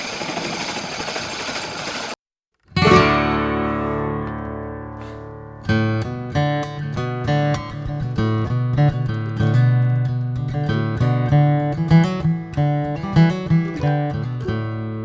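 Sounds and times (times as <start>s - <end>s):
plucked acoustic guitar rhythm: 2.7s - 15.0s
acoustic guitar strummed chord: 2.8s - 8.7s.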